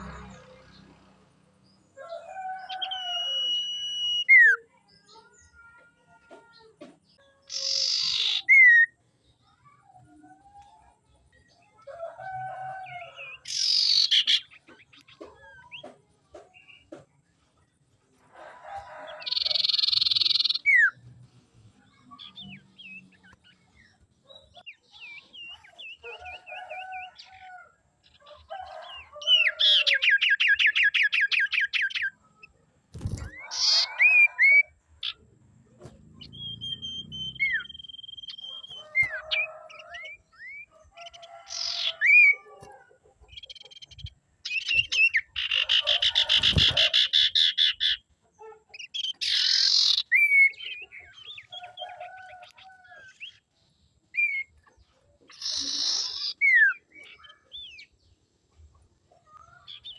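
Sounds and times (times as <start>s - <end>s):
bird calling and singing: 1.8s - 9.0s, 9.6s - 17.1s, 18.7s - 21.1s, 21.8s - 59.9s.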